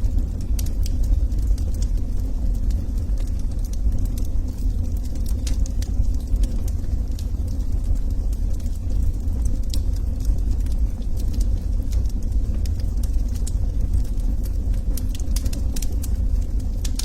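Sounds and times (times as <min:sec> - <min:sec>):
fire popping and snapping: 0:00.0 - 0:17.0
low rumble of burning: 0:00.0 - 0:17.0.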